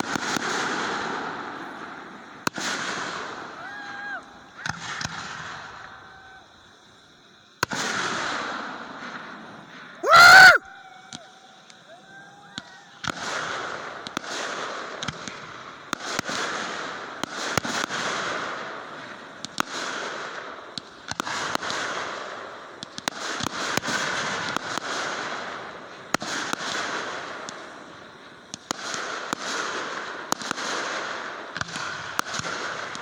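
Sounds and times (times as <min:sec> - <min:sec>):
fireworks hissing and cracking: 0:00.0 - 0:10.0, 0:11.2 - 0:33.0.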